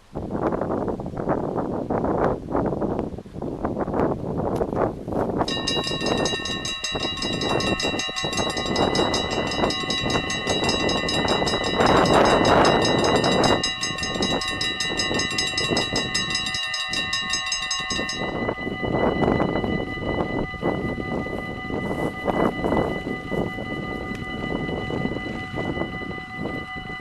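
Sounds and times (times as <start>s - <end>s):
level crossing bells ringing: 5.5s - 27.0s
train passing: 5.5s - 27.0s.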